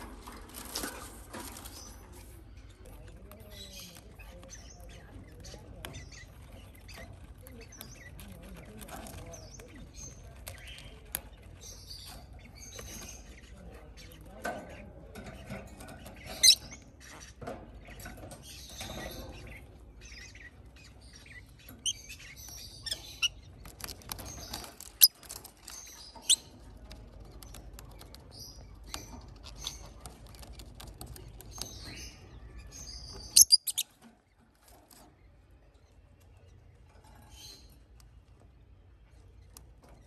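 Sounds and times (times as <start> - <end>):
parrot chicks chirping: 0.0 - 40.0.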